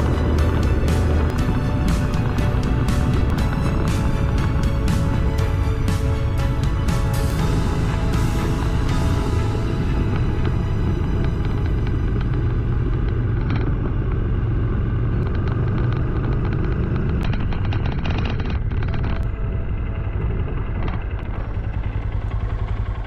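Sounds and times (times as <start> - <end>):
motorcycle engine running: 0.0 - 23.0
road and wind rumble: 0.0 - 23.0.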